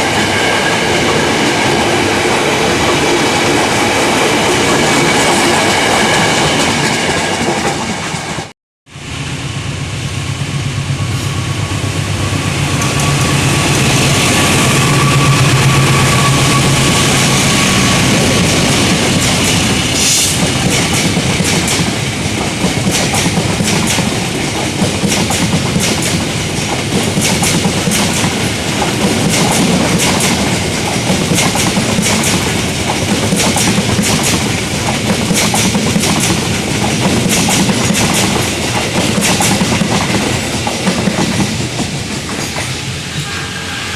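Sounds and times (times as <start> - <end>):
train passing rumble: 0.0 - 43.9
wheels clacking over rail joints: 18.1 - 42.9.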